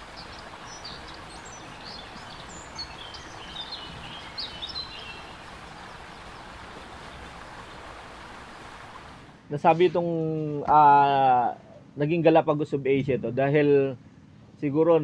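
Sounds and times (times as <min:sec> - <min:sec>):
birds chirping: 0:00.0 - 0:09.1.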